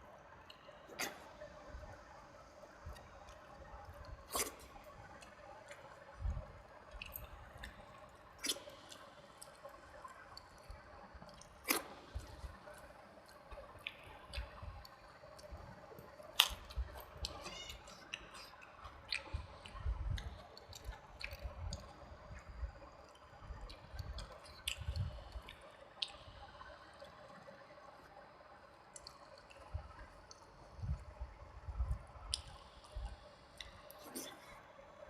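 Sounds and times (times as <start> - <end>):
wet chewing and mouth sounds: 0.4 - 2.2, 2.8 - 34.8
lip smacks: 4.3 - 4.7, 11.6 - 12.5, 16.4 - 21.8.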